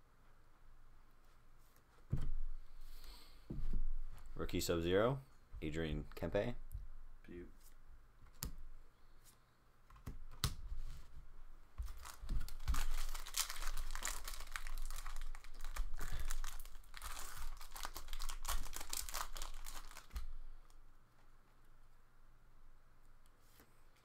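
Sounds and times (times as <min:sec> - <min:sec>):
card packaging crinkling: 0:11.8 - 0:20.3.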